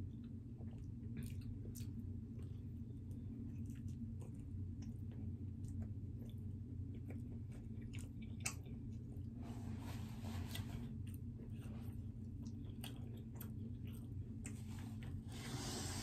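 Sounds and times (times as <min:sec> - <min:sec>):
close-up chewing: 0:00.0 - 0:15.2
steady low hum: 0:00.0 - 0:16.0.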